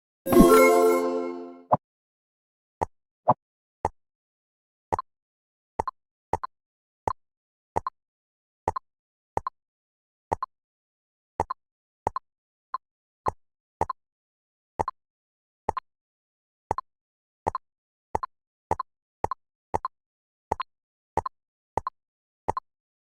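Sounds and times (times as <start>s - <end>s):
game plopping sound effects: 0.3s - 1.6s.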